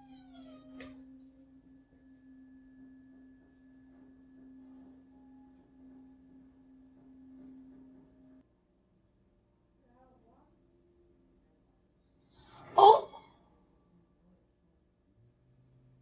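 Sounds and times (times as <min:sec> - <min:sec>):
low drone tone: 0:00.1 - 0:08.4.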